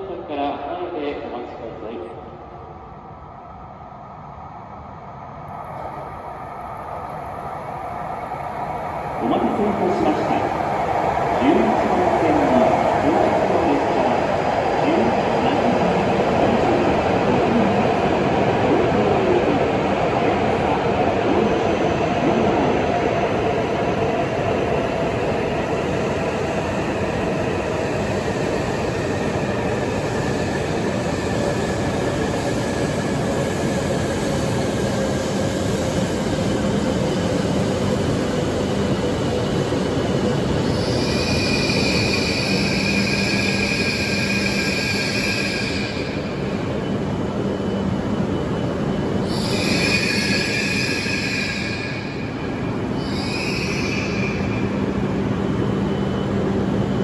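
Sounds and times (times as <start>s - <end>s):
train rolling slowly with whine: 0.0s - 57.0s
high squeal: 40.6s - 46.3s, 49.2s - 52.3s, 53.0s - 54.8s.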